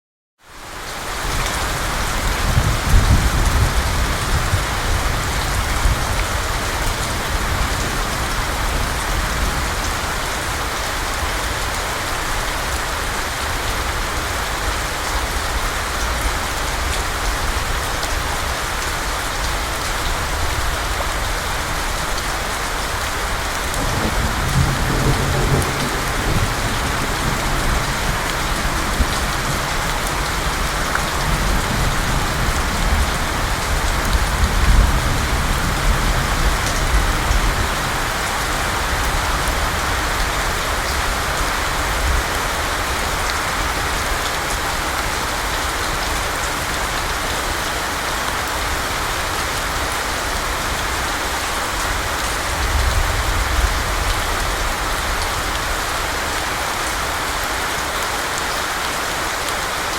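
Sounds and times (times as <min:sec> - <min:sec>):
wind buffeting microphone: 0:01.8 - 0:10.2.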